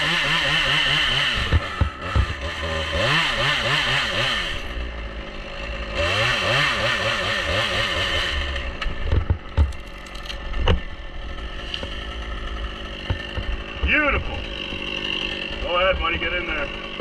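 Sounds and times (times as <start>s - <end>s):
chainsaw revving: 0.0s - 17.0s
sharp knocks: 12.9s - 14.0s.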